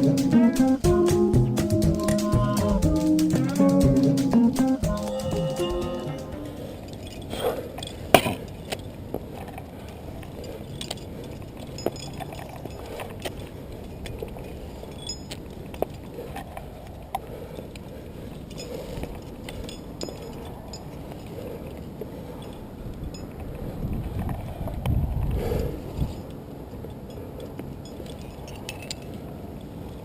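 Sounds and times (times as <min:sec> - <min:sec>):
faint steady background noise: 0:00.0 - 0:30.0
climbing gear clinking: 0:06.7 - 0:16.1, 0:17.5 - 0:23.6, 0:26.1 - 0:29.8.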